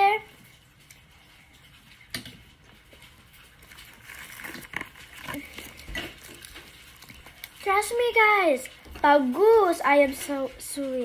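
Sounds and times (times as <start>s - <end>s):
quiet chewing and mouth noises: 0.3s - 9.0s
small clicks and taps at plates: 0.8s - 3.6s.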